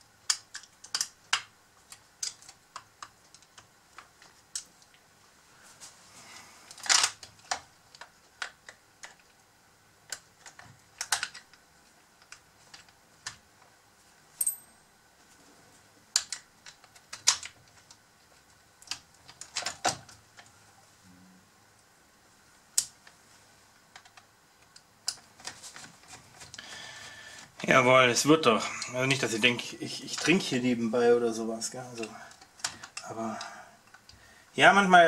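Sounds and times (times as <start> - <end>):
sharp clicks and light knocks: 0.2 - 5.0, 10.1 - 11.6, 16.1 - 20.5.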